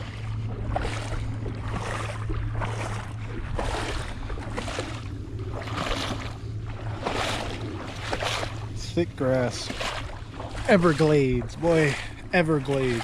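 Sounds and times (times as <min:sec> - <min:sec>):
low hum: 0:00.0 - 0:13.0
footsteps through thick grass: 0:00.7 - 0:08.8, 0:09.6 - 0:11.1.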